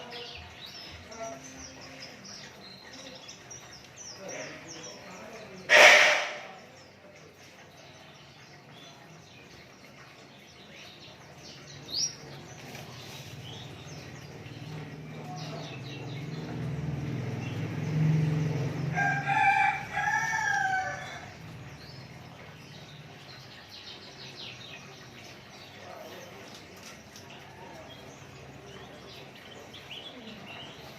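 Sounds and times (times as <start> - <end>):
rooster crowing: 18.8 - 21.4.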